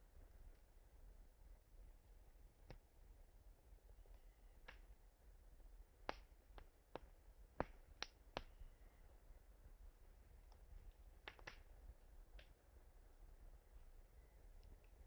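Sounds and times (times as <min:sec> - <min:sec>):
campfire crackling and popping: 0:04.0 - 0:08.7, 0:09.6 - 0:12.6.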